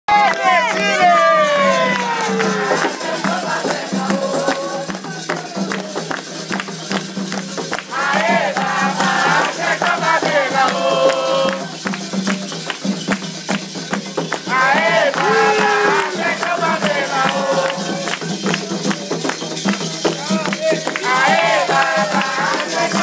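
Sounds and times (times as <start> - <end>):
voices singing: 0.1 - 6.0, 7.9 - 12.2, 14.4 - 19.1, 20.1 - 23.0
percussion beat: 0.1 - 23.0
shaken rattles: 2.3 - 23.0.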